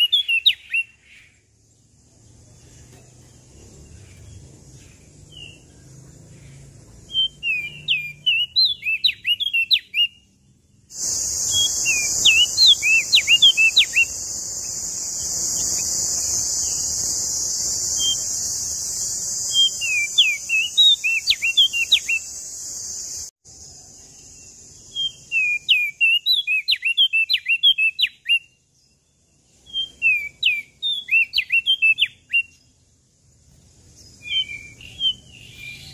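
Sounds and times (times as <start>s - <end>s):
warbler singing high whistles: 0.0s - 32.8s, 33.5s - 35.9s
steady background hiss: 10.4s - 26.4s.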